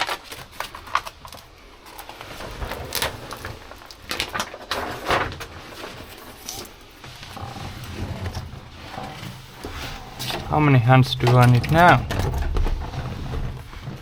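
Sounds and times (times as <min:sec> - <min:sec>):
handling of a sheet: 0:00.0 - 0:14.0
knife cutting insulation mat: 0:02.0 - 0:10.5.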